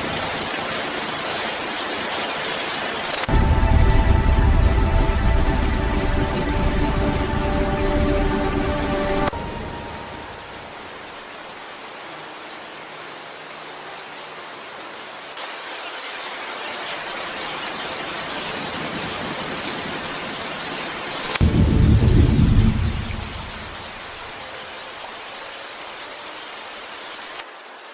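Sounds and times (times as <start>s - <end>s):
steady rainfall: 0.0s - 27.9s
deep rumble of thunder: 3.3s - 10.2s, 21.4s - 24.1s.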